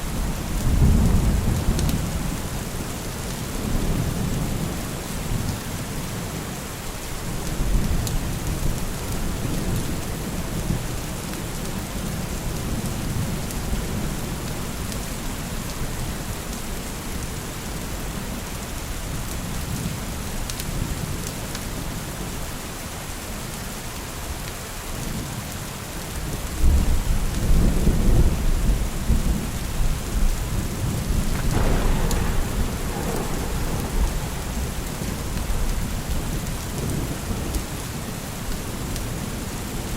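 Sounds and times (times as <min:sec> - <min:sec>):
heavy rain: 0:00.0 - 0:39.9
rolling thunder: 0:30.2 - 0:37.7.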